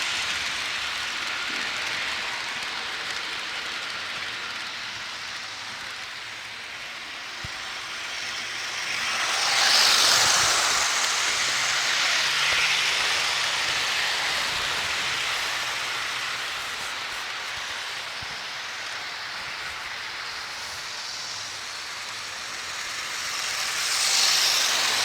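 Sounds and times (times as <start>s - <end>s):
model train wheels rolling on rails: 0.0s - 25.0s.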